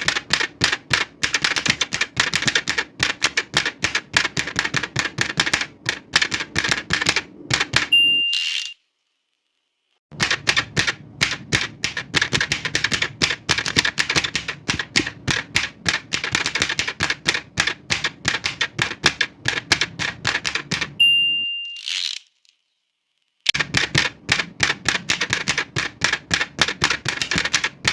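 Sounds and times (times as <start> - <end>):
typewriter keys clacking: 0.0 - 7.9, 10.2 - 21.0, 23.6 - 27.9
typewriter bell ding: 7.9 - 8.8, 21.0 - 21.8.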